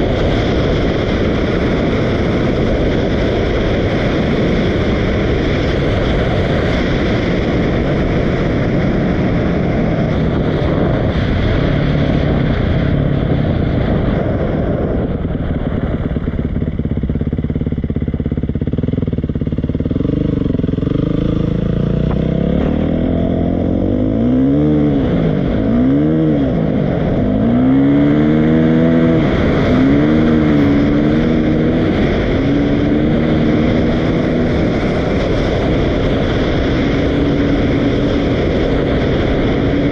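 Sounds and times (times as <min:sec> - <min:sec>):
wind noise: 0:00.0 - 0:39.9
dirt bike engine revving: 0:15.7 - 0:39.9.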